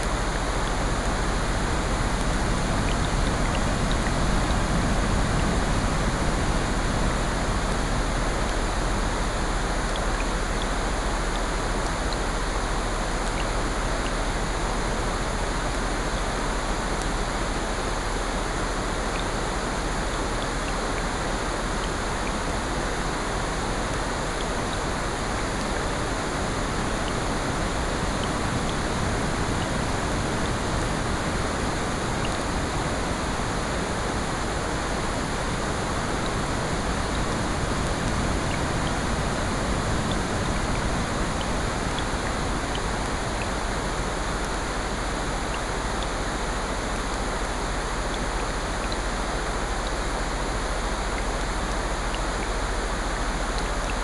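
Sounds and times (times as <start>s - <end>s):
rain: 0.0s - 54.0s
faint ticks: 13.0s - 14.7s, 17.0s - 17.4s, 38.0s - 54.0s.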